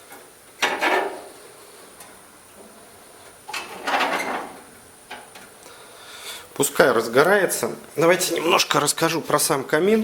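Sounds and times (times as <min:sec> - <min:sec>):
metal scraping slides: 0:03.6 - 0:04.6.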